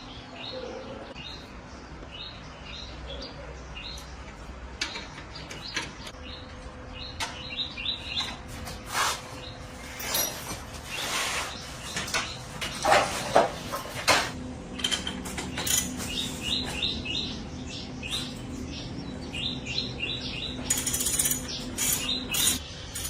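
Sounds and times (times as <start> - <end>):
metal tools clinking: 9.8 - 11.1, 11.9 - 16.6, 20.6 - 23.0.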